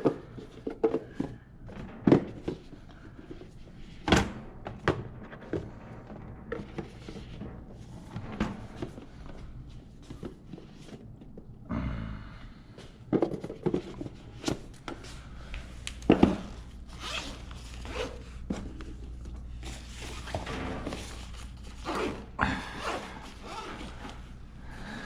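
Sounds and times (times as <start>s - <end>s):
objects rustling and clicking: 12.9s - 24.4s.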